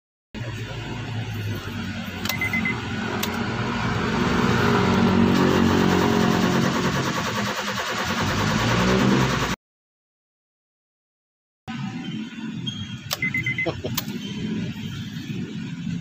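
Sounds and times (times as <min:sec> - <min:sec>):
car engine revving: 0:00.4 - 0:09.6.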